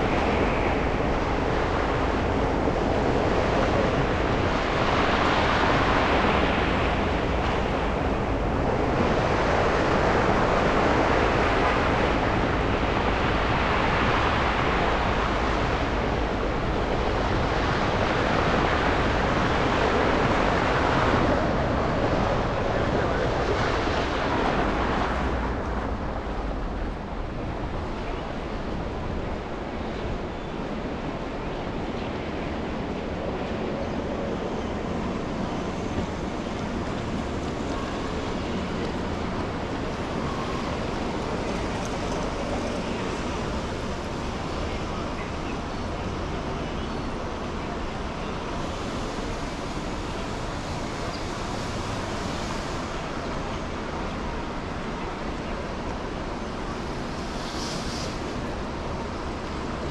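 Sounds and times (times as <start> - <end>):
car tyres hissing on snowy road: 48.5 - 53.9, 56.4 - 59.9.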